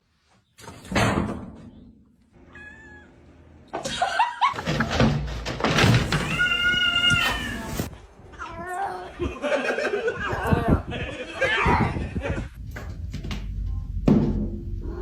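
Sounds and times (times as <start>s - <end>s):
cat meowing: 2.5s - 3.2s
thumps and clattering: 4.6s - 6.5s.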